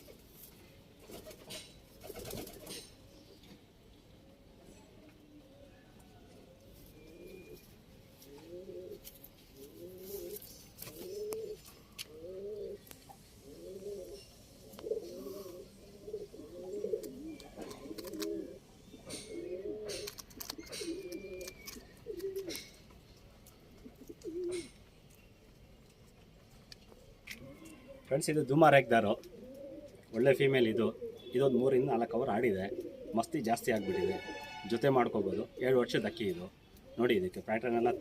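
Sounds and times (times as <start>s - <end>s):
pigeon cooing: 4.8s - 22.9s, 23.5s - 24.9s, 26.9s - 28.2s, 28.8s - 34.6s, 35.2s - 38.0s.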